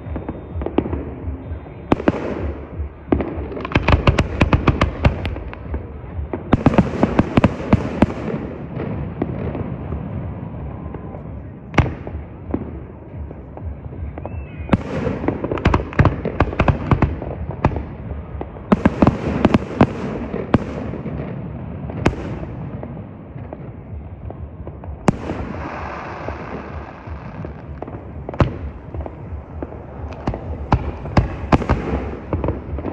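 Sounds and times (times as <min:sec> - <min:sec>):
firework bangs with echo: 0:00.0 - 0:32.9
fireworks crackling pops: 0:11.8 - 0:32.9.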